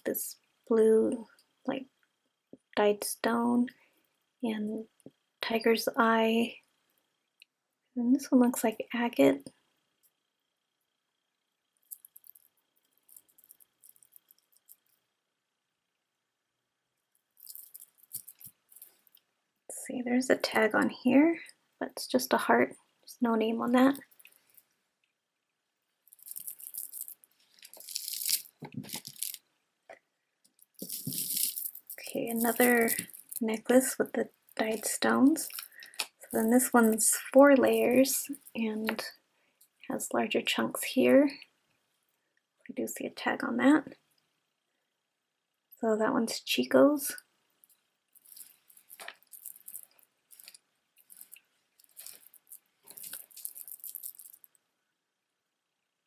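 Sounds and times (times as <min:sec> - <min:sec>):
beads rustling and clicking: 0:11.8 - 0:15.0, 0:17.2 - 0:19.3, 0:23.6 - 0:24.8, 0:26.0 - 0:29.5, 0:30.4 - 0:39.8, 0:47.6 - 0:54.6.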